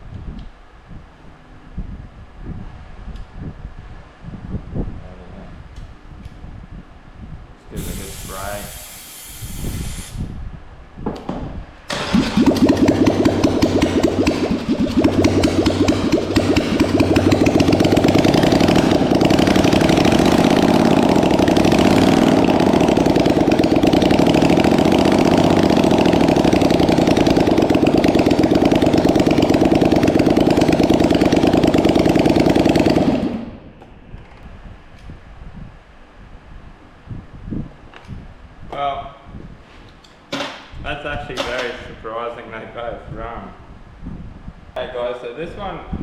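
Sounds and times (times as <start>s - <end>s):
atv engine cranking and idling: 11.9s - 33.7s.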